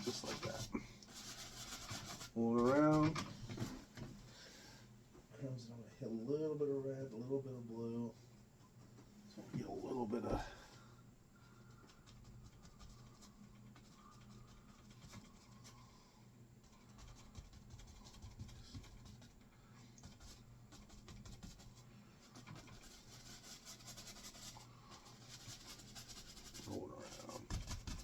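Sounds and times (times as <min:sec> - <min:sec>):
paintbrush brushing on canvas: 0:00.0 - 0:02.9, 0:12.0 - 0:19.3, 0:20.0 - 0:28.0
faint refrigerator hum: 0:00.0 - 0:28.0.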